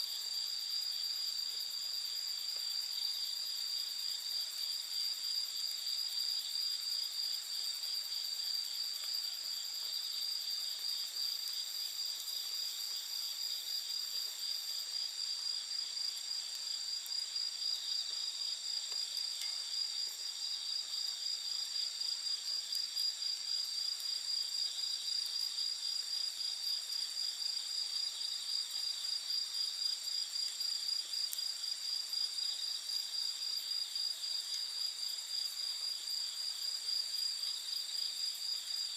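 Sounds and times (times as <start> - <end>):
night insects trilling: 0.0 - 38.9
campfire crackling: 0.1 - 22.0.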